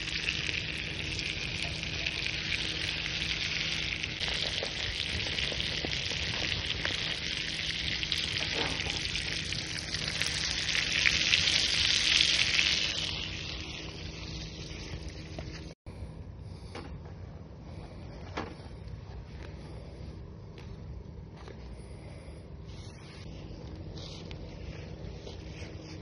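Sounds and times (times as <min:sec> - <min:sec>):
steak sizzling on a grill: 0:00.0 - 0:15.6
wood fire crackles: 0:00.0 - 0:15.8.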